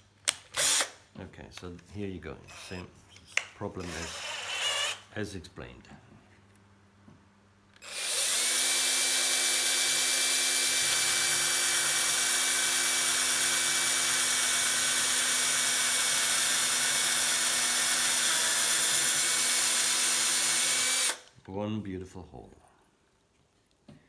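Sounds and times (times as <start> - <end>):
power drill whining: 0.5 - 1.0, 3.8 - 5.0, 7.8 - 21.3.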